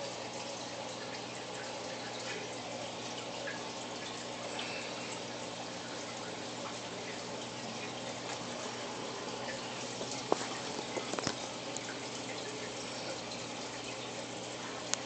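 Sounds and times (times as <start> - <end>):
aquarium water trickling: 0.0 - 15.0.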